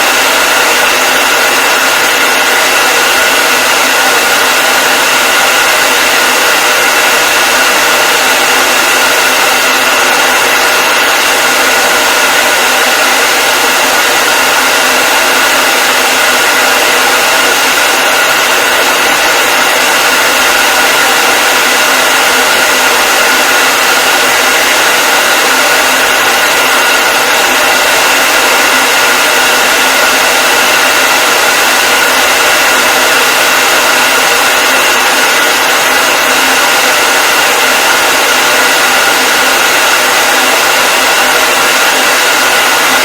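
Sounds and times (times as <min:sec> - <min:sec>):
hair dryer running: 0:00.0 - 0:43.0.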